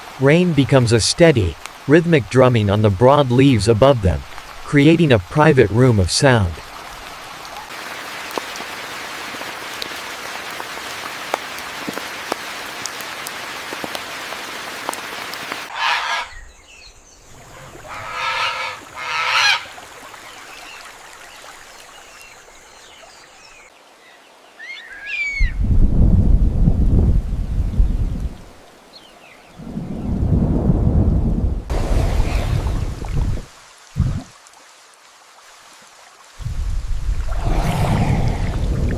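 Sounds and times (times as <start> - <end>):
rain falling on leaves: 0.0 - 15.7, 31.7 - 37.7
animal calling loudly: 15.7 - 16.4, 17.4 - 19.8.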